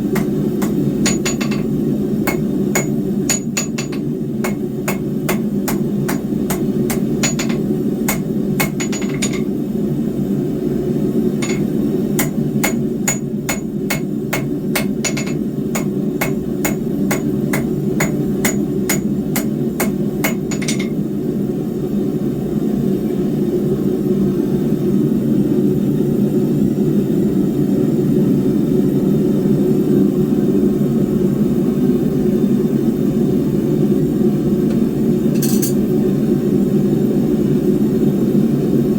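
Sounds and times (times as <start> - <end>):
hammer striking steel on anvil: 0.0 - 9.5, 11.4 - 21.0, 35.4 - 35.8.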